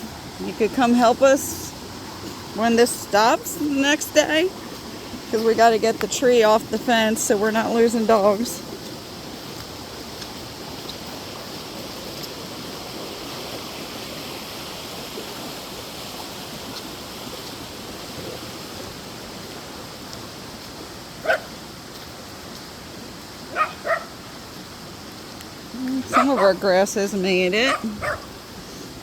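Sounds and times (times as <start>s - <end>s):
flooded creek rushing: 0.0s - 29.0s
dog barking: 21.2s - 21.5s, 23.5s - 24.1s, 26.1s - 26.6s, 27.7s - 28.3s.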